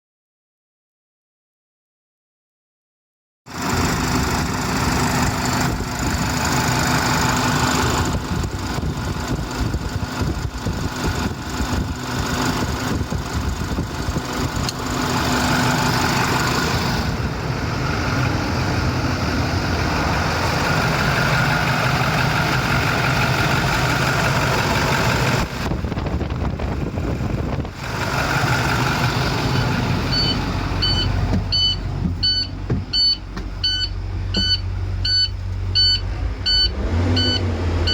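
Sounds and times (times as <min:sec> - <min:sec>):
diesel engine idling: 0:03.5 - 0:37.9
high electronic beeping: 0:29.5 - 0:37.9.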